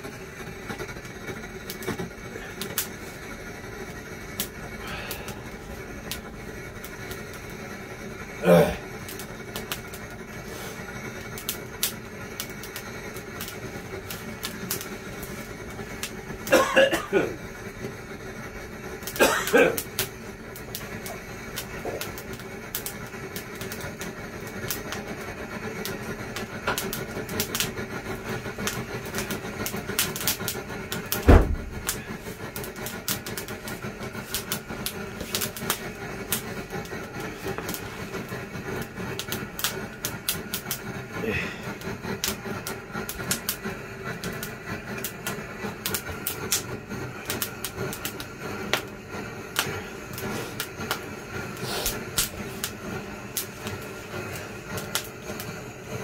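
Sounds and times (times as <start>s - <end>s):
firewood crackling and popping: 0.0s - 56.0s
loud thump: 31.2s - 31.9s.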